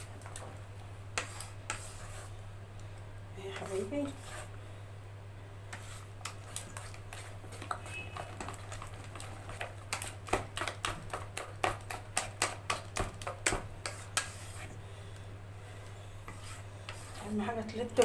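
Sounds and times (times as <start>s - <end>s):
batter beaten by hand: 9.4s - 14.4s.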